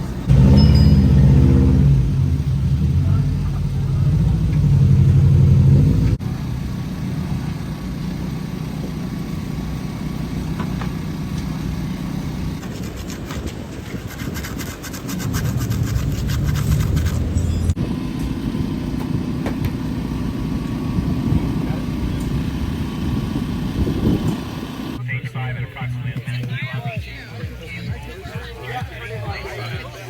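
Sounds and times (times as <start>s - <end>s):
rally car engine running hard: 0.0s - 12.6s, 17.4s - 25.0s
tyre and road noise: 0.0s - 30.0s.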